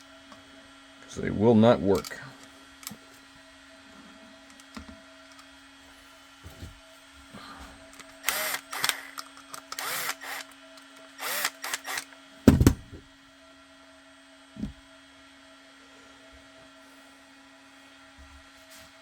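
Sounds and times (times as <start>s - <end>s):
power driver tightening screws: 8.0s - 10.5s, 11.2s - 12.1s
loud thump: 12.5s - 13.0s.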